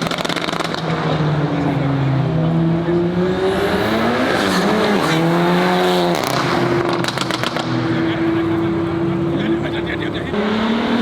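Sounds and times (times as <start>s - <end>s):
exhaust pops: 0.0s - 1.2s, 6.1s - 8.0s
car engine under hard throttle: 0.0s - 11.0s.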